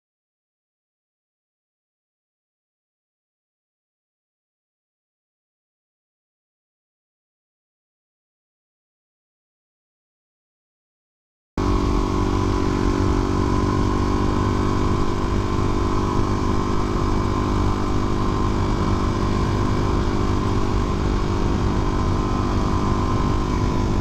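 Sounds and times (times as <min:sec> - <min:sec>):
engine running steadily: 0:11.6 - 0:24.0.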